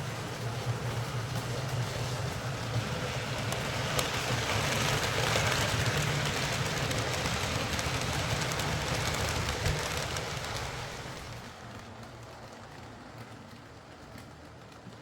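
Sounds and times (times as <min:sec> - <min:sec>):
model train motor hum: 0:00.0 - 0:12.6
wheels on rails: 0:00.0 - 0:15.0.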